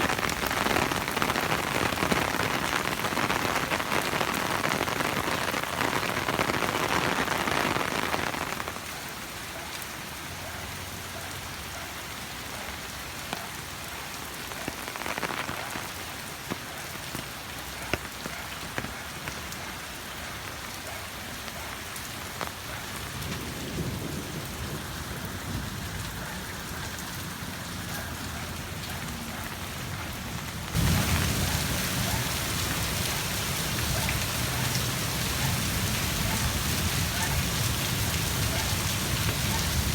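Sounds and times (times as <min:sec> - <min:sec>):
heavy rain hissing: 0:00.0 - 0:09.2, 0:14.3 - 0:20.6, 0:29.0 - 0:39.9
raindrop ticks: 0:14.5 - 0:19.8.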